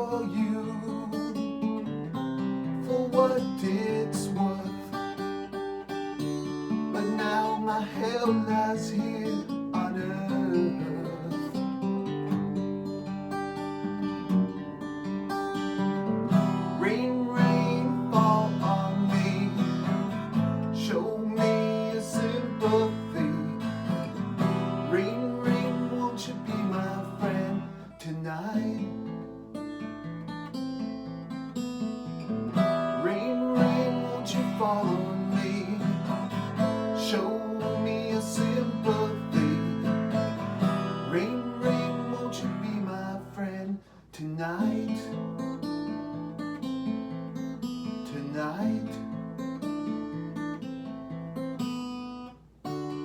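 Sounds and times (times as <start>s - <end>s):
acoustic guitar playing: 0.0s - 53.0s.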